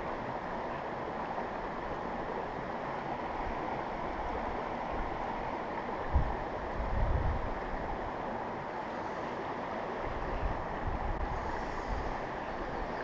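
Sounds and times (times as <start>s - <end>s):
creek water rushing: 0.0s - 13.0s
wind buffeting microphone: 6.0s - 7.6s.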